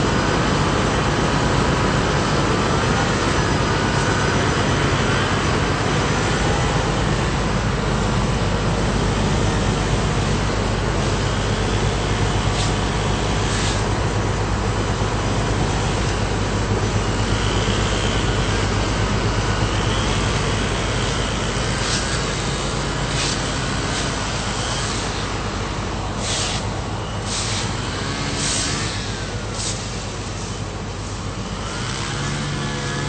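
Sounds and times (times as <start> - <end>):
engine low drone: 0.0 - 33.0
short hissing bursts: 27.3 - 27.7, 29.5 - 31.1.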